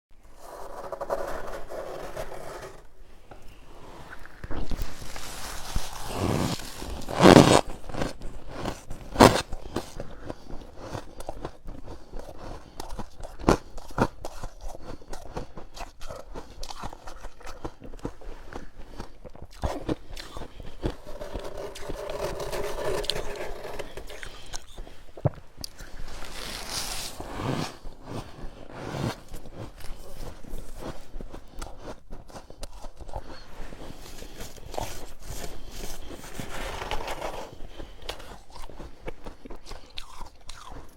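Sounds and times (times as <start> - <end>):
frost being scraped: 0.4 - 2.9, 3.8 - 9.9, 19.8 - 25.0, 25.8 - 32.0
crunchy bites of frost: 4.6 - 11.5.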